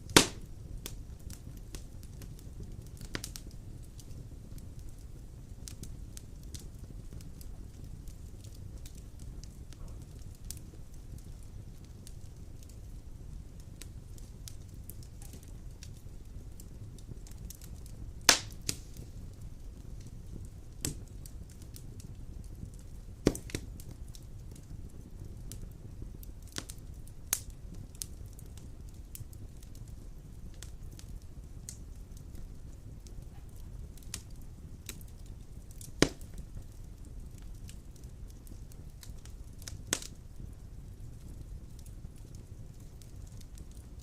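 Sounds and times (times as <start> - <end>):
fire crackles: 0.0 - 44.0
low rumble of flames: 0.0 - 44.0
sharp pops of burning logs: 0.0 - 44.0.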